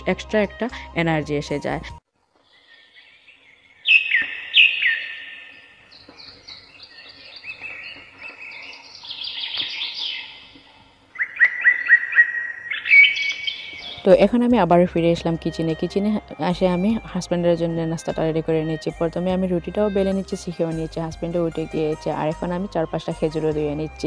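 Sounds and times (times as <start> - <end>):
caged birds chirping: 2.4 - 14.4.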